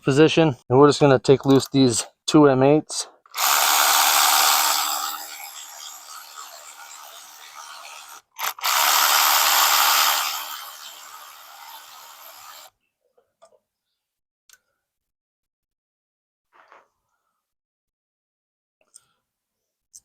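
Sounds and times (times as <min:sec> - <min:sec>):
power tool motor running: 0:03.3 - 0:12.7.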